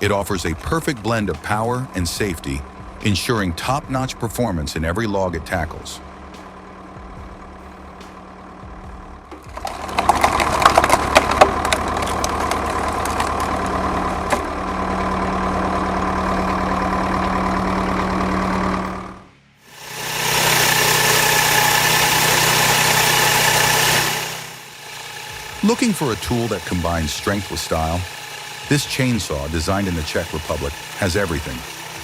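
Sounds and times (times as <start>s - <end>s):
hydraulic wood splitter humming: 0.0s - 32.0s
machine high-pitched whine: 0.0s - 32.0s
log cracking and creaking: 9.3s - 16.8s.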